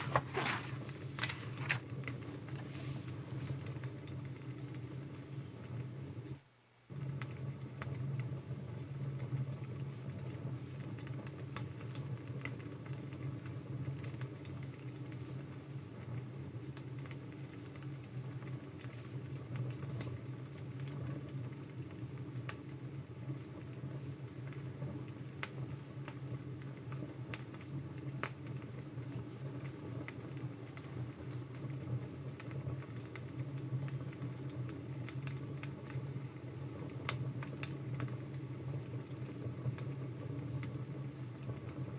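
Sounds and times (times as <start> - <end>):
wood fire crackling: 0.0 - 2.0.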